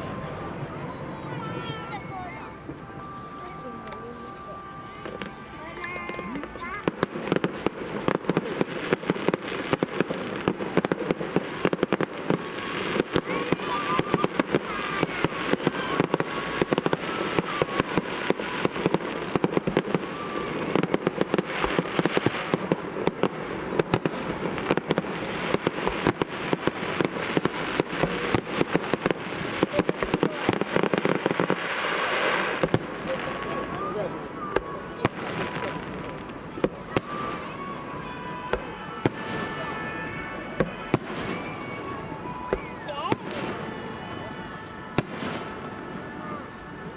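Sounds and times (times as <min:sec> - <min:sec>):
fireworks bangs with crackling: 0:00.0 - 0:46.9.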